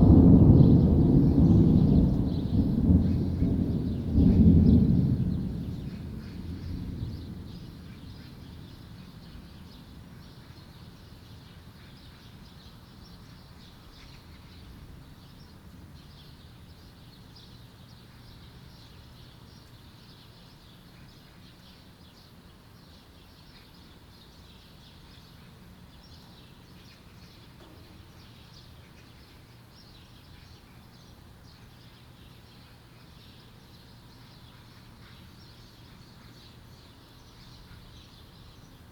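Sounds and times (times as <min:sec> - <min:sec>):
thunder rumble: 0:00.0 - 0:09.1
faint steady background noise: 0:00.0 - 0:38.9.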